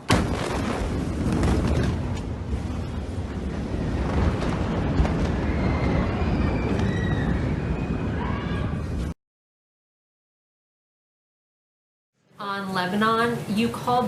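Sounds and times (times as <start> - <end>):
explosion rumble and crackle: 0.0 - 9.2.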